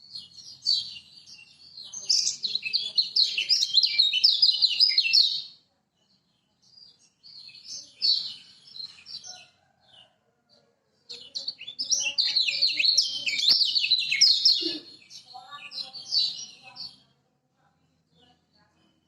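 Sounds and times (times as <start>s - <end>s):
bird singing high chattering warbles: 0.0s - 5.6s, 6.7s - 9.5s, 11.1s - 17.1s.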